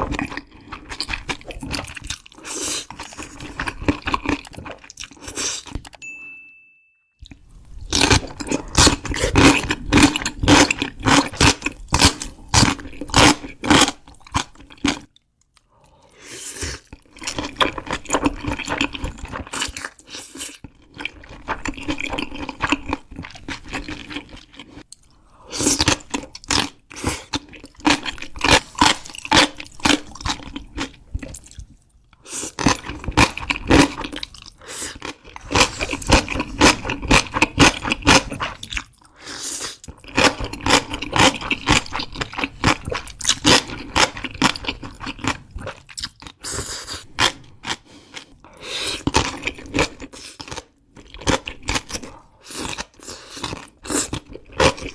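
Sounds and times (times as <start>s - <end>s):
crunching and chewing food: 0.0s - 6.0s, 7.2s - 54.9s.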